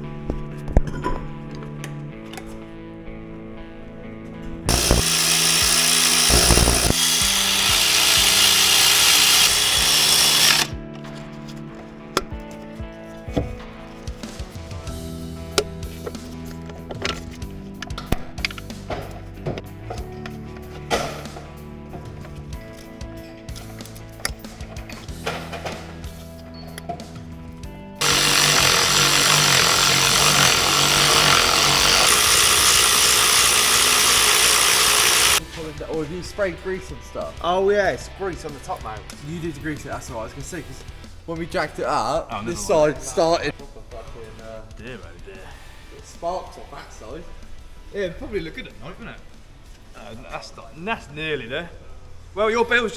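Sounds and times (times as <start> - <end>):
background music: 0.0 - 52.9
power tool hissing: 4.7 - 10.7, 28.0 - 35.4.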